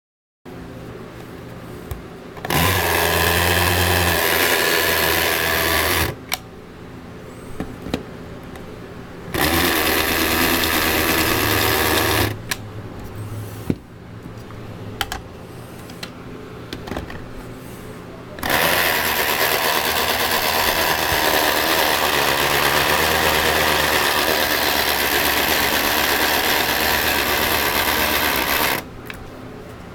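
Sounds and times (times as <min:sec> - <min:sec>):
toy blender motor running: 0:02.4 - 0:06.2, 0:09.3 - 0:12.4, 0:18.4 - 0:28.9.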